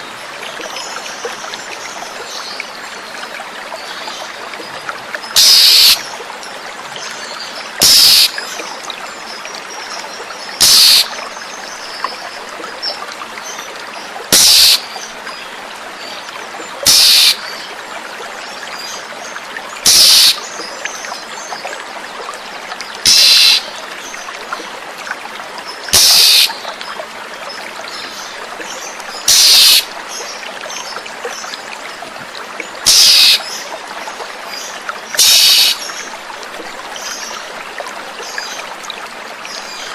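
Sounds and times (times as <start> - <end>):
running water: 0.0 - 39.9
bird giving harsh calls: 5.4 - 6.0, 7.8 - 8.3, 10.6 - 11.1, 14.3 - 14.8, 16.9 - 17.4, 19.9 - 20.4, 23.1 - 23.7, 25.9 - 26.5, 29.3 - 29.9, 32.9 - 33.4, 35.2 - 35.8.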